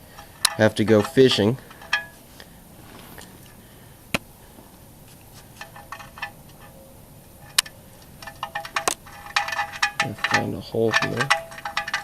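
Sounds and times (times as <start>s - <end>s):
drain plug clinking: 0.0s - 2.2s, 7.4s - 12.0s.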